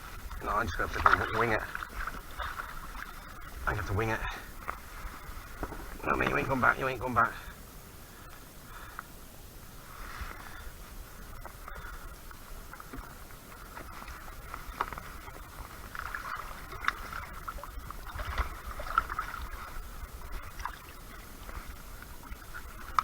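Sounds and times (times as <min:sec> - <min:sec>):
low wind rumble: 0:00.0 - 0:23.0
water lapping against kayak: 0:00.0 - 0:23.0.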